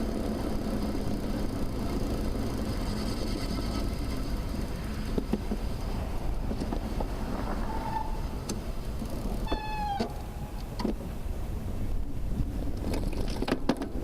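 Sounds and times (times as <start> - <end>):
road traffic rumble: 0.0 - 14.0
sharp clicks and rattles: 12.7 - 14.0.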